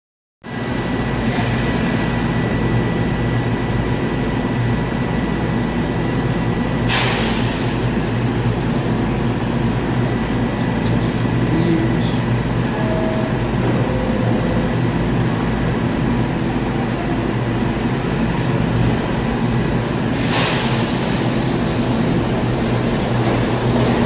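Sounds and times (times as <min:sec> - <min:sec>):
subway train hum and rumble: 0:00.4 - 0:24.0
air hiss: 0:20.2 - 0:22.2.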